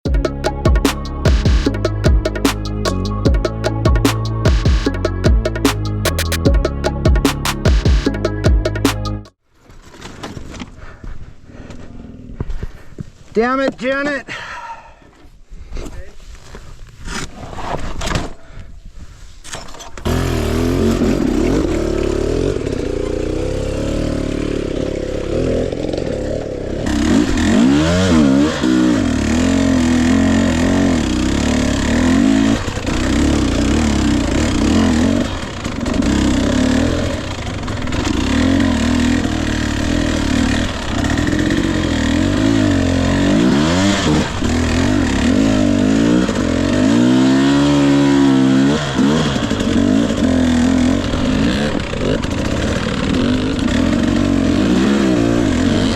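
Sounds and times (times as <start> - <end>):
dirt bike engine revving: 20.1 - 55.9.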